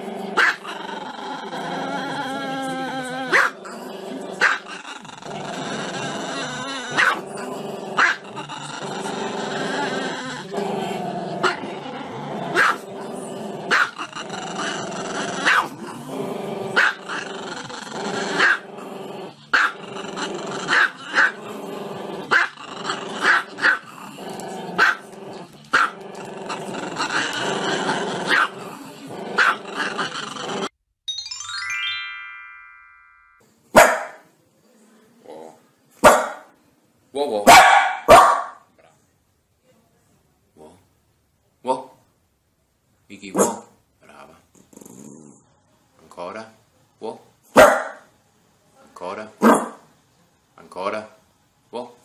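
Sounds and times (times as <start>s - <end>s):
dog yapping: 6.9s - 7.2s, 37.5s - 38.6s, 47.6s - 48.0s
chiming sound effect: 31.1s - 33.4s.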